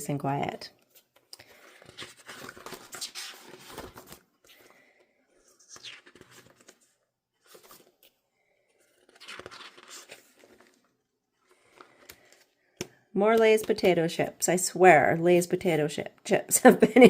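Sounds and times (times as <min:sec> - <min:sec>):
paper and plastic rustling: 0:00.8 - 0:12.6.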